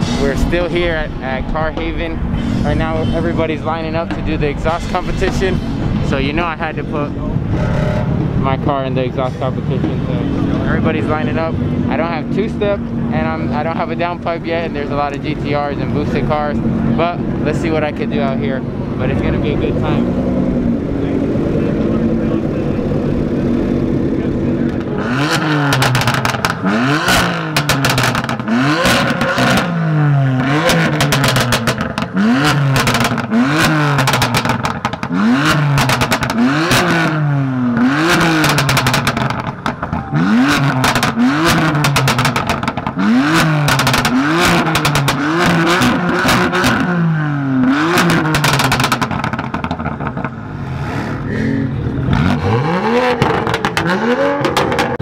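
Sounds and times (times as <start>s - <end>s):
car engine revving hard: 18.9s - 55.0s
exhaust crackles and pops: 23.0s - 47.0s, 47.6s - 50.6s, 52.0s - 55.0s.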